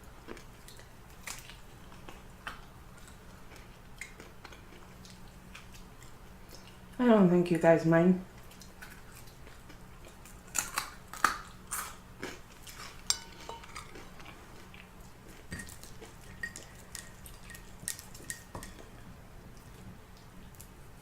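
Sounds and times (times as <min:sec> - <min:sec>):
chewing: 0:00.2 - 0:07.0, 0:08.3 - 0:20.8
utensils clinking on dishes: 0:12.7 - 0:14.3.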